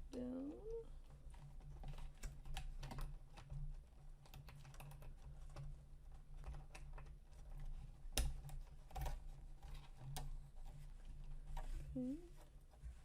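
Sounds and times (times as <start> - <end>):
low steady hum: 0.0 - 1.4.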